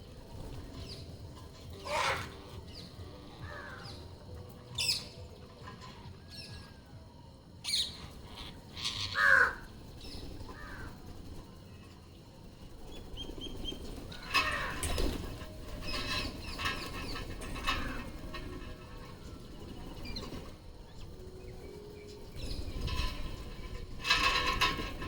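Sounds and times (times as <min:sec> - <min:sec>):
parrots squawking: 0:01.7 - 0:04.0, 0:07.7 - 0:09.7.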